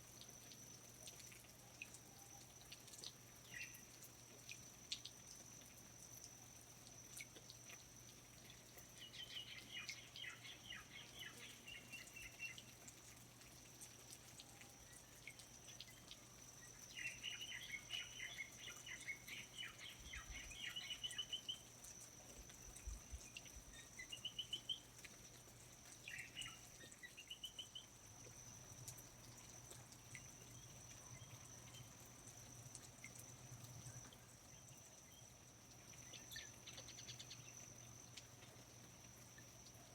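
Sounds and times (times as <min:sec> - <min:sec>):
faint drips and ticks: 0:00.0 - 0:39.9
songbird trilling and chirping: 0:17.0 - 0:21.6.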